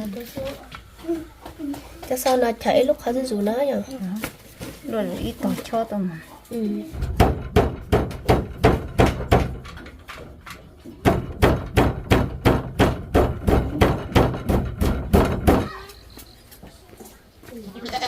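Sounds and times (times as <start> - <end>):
repeated knocks: 6.9 - 15.9.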